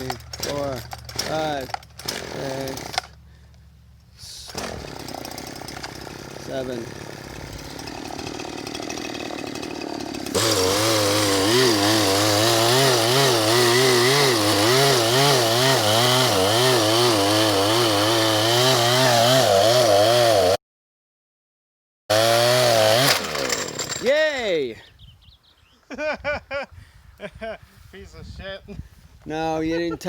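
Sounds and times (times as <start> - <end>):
chainsaw cutting wood: 0.0 - 3.2, 4.3 - 20.6, 22.1 - 24.2.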